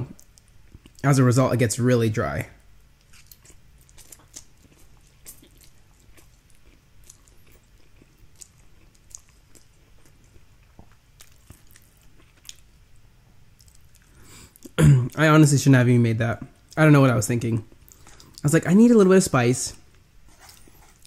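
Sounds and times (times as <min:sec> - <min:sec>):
person chewing noodles: 0:03.0 - 0:12.7, 0:13.5 - 0:14.8.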